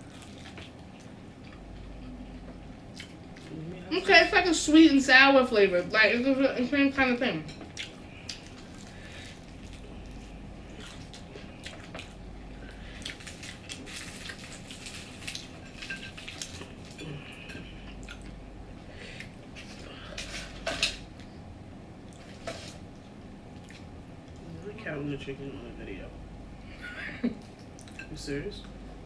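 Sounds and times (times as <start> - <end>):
biting and chewing food: 0.0 - 3.5, 7.7 - 18.4.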